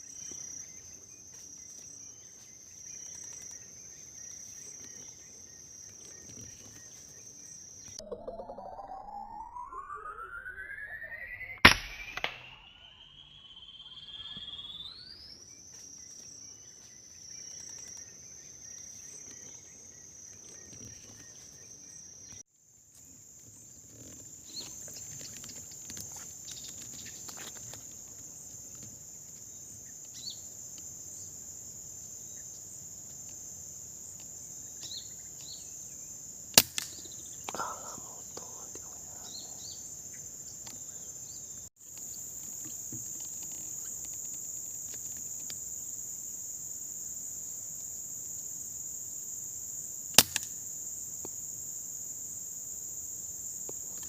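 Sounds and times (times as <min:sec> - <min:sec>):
high-pitched insect drone: 0:02.9 - 0:16.2, 0:37.4 - 0:41.4
air rifle shots: 0:11.6 - 0:12.6.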